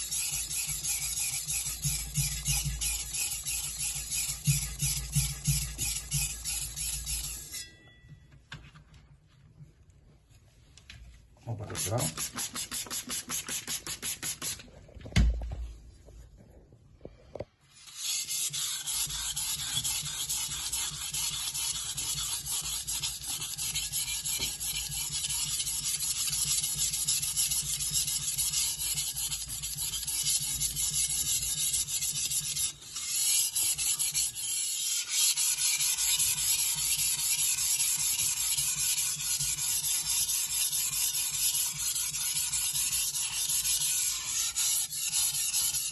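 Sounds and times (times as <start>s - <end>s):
blade stroked on sharpening stone: 0.0s - 7.8s, 17.7s - 45.9s.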